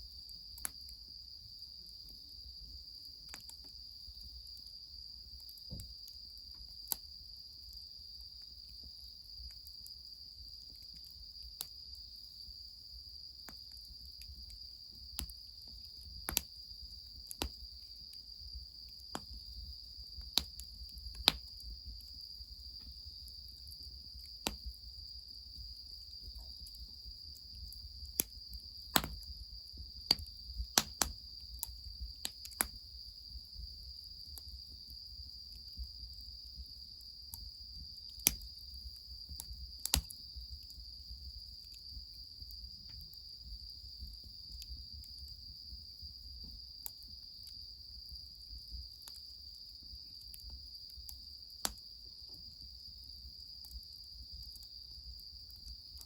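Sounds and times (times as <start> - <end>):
wood fire crackling and popping: 13.4 - 18.2, 20.2 - 22.1, 22.8 - 24.8, 26.1 - 29.4, 30.0 - 32.8, 38.1 - 38.6, 39.3 - 40.6.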